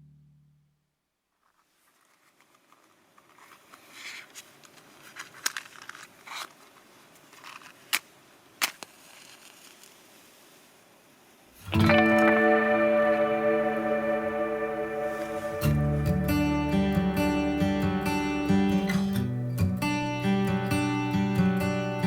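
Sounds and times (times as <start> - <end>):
low hiss: 6.1 - 22.0.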